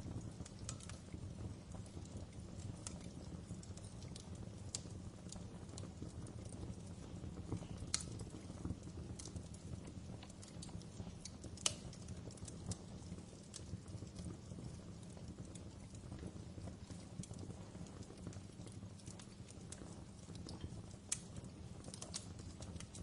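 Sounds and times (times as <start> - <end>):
low fire rumble: 0.0 - 23.0
wood fire crackling and popping: 0.0 - 23.0.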